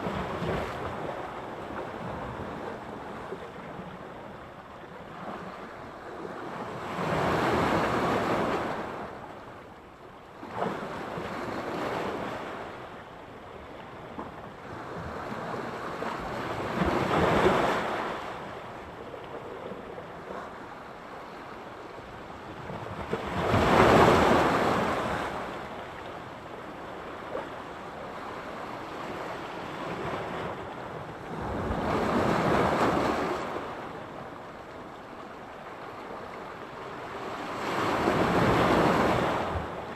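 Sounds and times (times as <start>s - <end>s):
waves breaking on shore: 14.7s - 39.9s.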